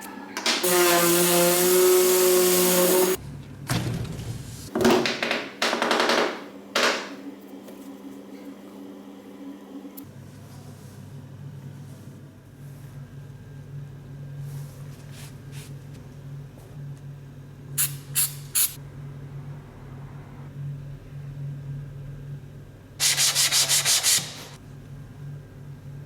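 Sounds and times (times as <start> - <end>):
sandpaper scraping wood: 0.6 - 3.2, 23.0 - 24.6.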